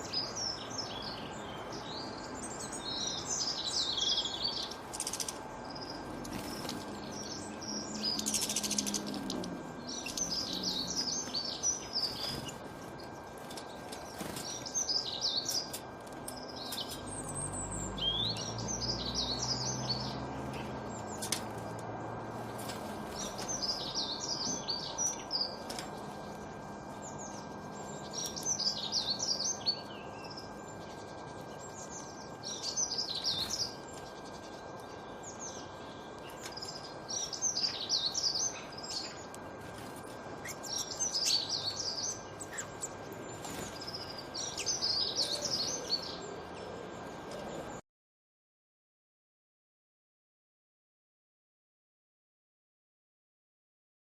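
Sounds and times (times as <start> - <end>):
songbird twittering: 0.0 - 12.6, 40.4 - 46.7.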